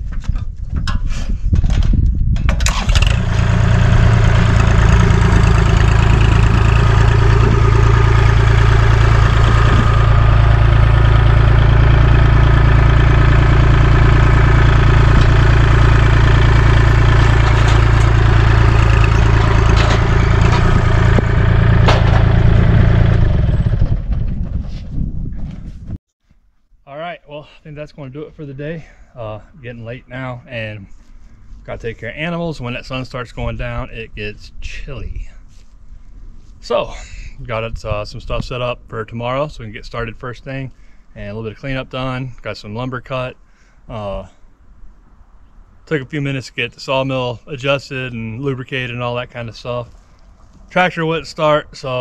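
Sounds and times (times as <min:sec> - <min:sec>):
tractor diesel engine running: 0:02.5 - 0:24.6.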